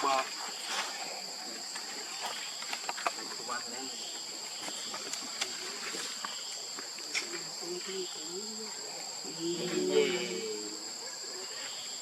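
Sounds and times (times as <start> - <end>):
insects droning: 0.0 - 12.0
faint voices: 7.1 - 11.7.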